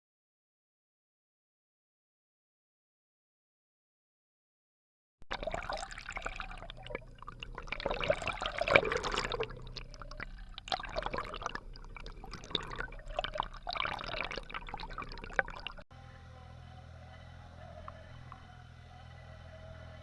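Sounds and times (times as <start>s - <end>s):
water gurgling and splashing: 5.3s - 15.8s.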